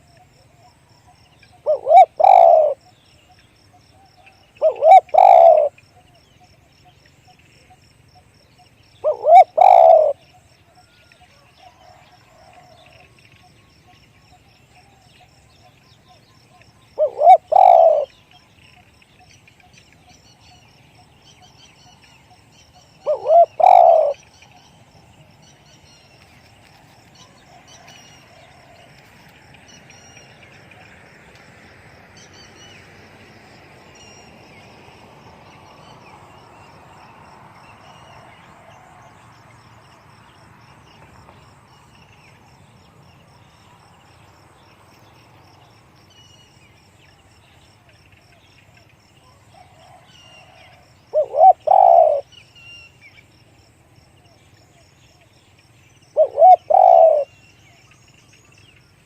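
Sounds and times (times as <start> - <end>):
birds chirping: 1.0 - 3.6, 4.2 - 7.4, 8.5 - 10.4, 12.8 - 31.0, 50.4 - 53.1, 55.1 - 58.8
dove cooing: 1.6 - 2.9, 4.1 - 6.1, 9.0 - 10.3, 17.0 - 18.2, 23.0 - 24.3, 49.6 - 52.3, 56.2 - 57.3.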